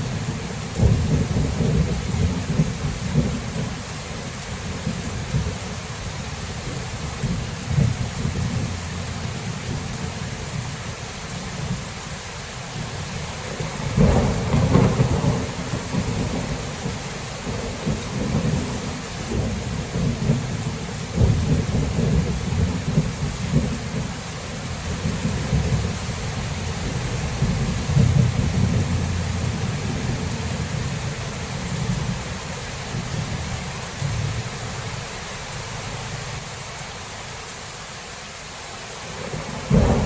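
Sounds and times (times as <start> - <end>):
thunder rumbling: 0.0 - 3.8, 6.6 - 10.7, 12.8 - 35.0, 39.2 - 40.0
steady rain falling: 0.0 - 40.0.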